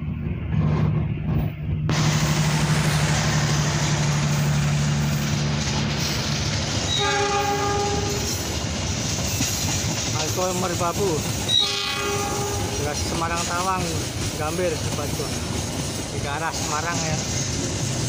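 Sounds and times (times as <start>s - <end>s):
locomotive engine hum: 0.0s - 18.0s
train wheels rushing on rails: 0.0s - 18.0s
train horn: 6.9s - 8.4s, 11.5s - 12.8s.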